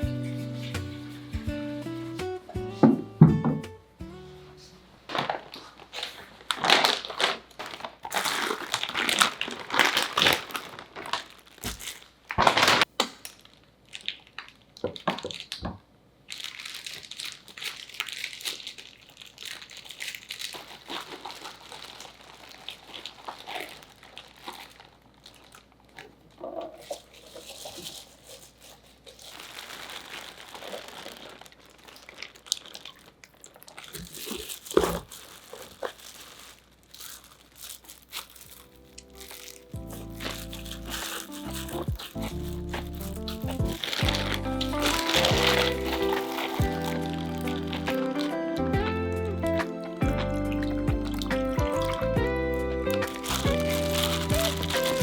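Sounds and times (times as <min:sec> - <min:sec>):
plastic packaging crinkling: 0:05.0 - 0:55.0.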